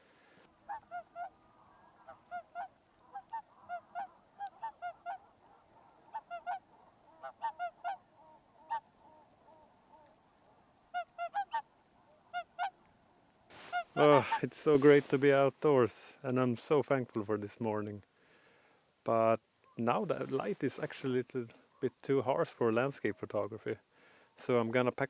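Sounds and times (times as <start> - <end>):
geese honking: 0.7 - 8.8, 13.6 - 15.2.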